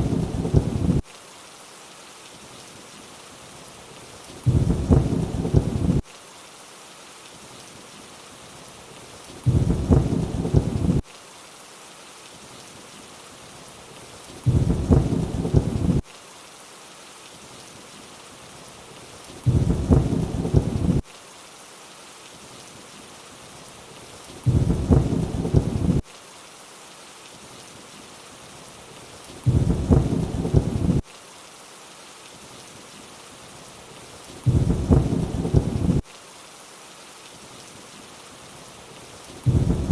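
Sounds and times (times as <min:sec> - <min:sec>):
low thunder rumble: 0:00.0 - 0:01.0, 0:04.5 - 0:06.0, 0:09.5 - 0:11.0, 0:14.5 - 0:16.0, 0:19.5 - 0:21.0, 0:24.5 - 0:26.0, 0:29.5 - 0:31.0, 0:34.5 - 0:36.0, 0:39.5 - 0:39.9
rainfall hiss: 0:00.0 - 0:39.9.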